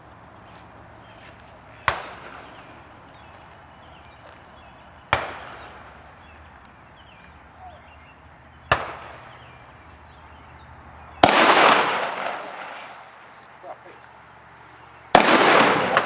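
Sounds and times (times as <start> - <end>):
shotgun shots with echo: 5.1 - 5.8, 8.7 - 9.3, 11.2 - 13.4, 15.1 - 16.0.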